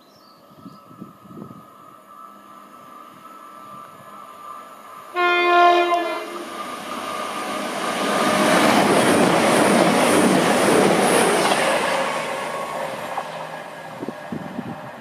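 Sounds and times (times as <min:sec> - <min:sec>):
train passing at speed: 0:00.3 - 0:15.0
train horn blast: 0:05.1 - 0:06.5.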